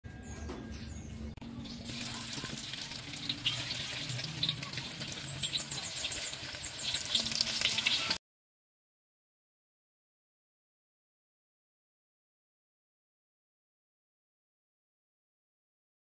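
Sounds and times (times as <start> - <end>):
food frying in hot oil: 1.6 - 8.2.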